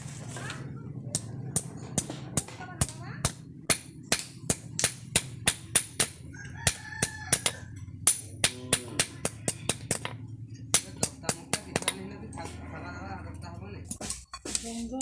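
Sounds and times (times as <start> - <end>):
rooster crowing: 6.2 - 7.9.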